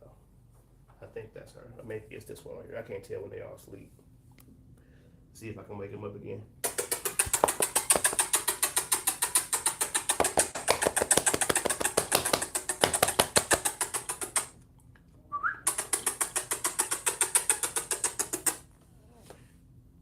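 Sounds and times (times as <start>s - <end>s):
fast sharp clicks: 6.6s - 14.5s, 15.7s - 18.6s.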